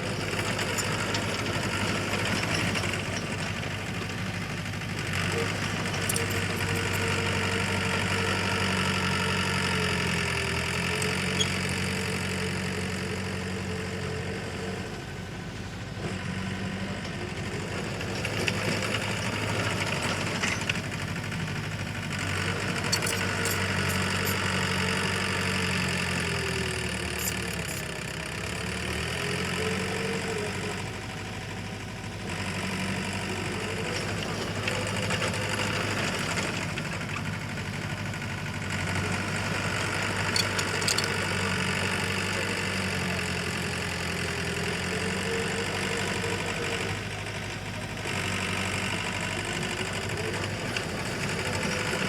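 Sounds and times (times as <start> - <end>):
diesel engine of heavy machinery: 0.0 - 52.0
sharp metallic clicks: 22.7 - 24.5, 40.2 - 41.3.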